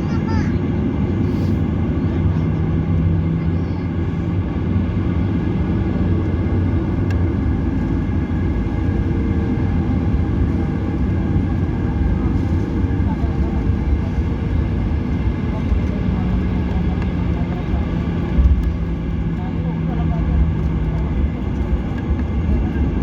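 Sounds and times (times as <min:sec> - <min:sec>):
airliner engines droning in cabin: 0:00.0 - 0:23.0.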